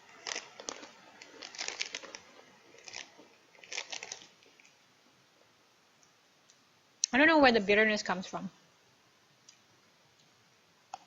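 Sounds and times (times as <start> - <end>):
crunchy biscuit chewing: 0.0 - 4.8.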